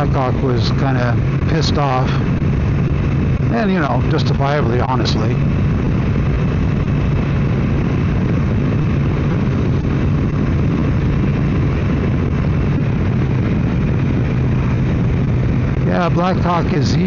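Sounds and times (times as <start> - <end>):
motorcycle engine running: 0.0 - 17.0
wind and road rush: 0.0 - 17.0.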